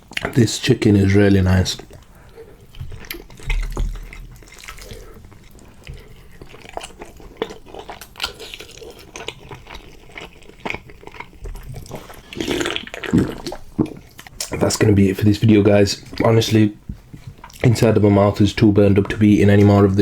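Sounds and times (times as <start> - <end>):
wet chewing: 0.0 - 20.0.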